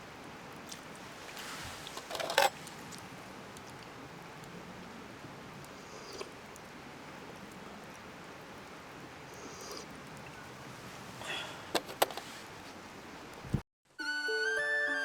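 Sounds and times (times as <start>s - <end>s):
short rustle: 1.0s - 3.3s, 12.0s - 13.6s.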